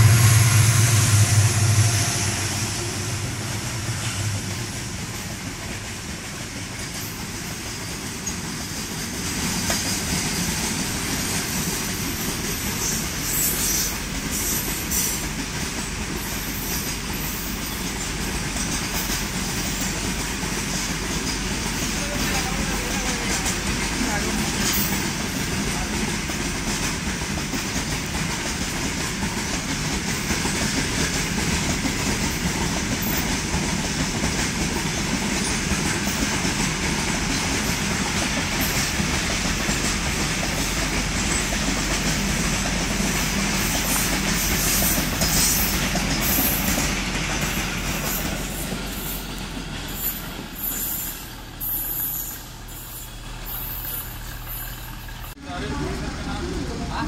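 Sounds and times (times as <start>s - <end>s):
freight wagons rumbling on rails: 0.0s - 57.0s
high-pitched wheel squeaks and clicks: 48.0s - 55.3s.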